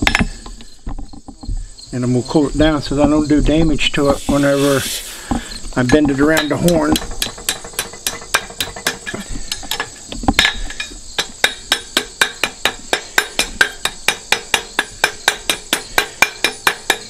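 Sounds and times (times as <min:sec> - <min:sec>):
hammer striking iron on anvil: 0:06.2 - 0:10.6, 0:11.2 - 0:17.0.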